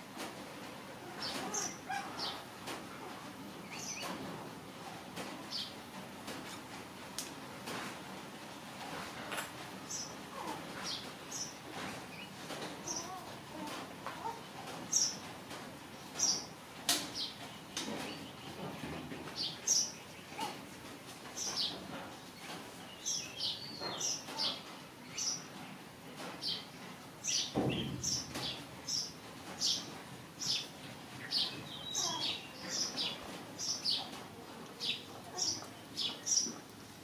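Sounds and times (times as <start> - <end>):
birds chirping: 21.3 - 25.8, 26.4 - 36.7.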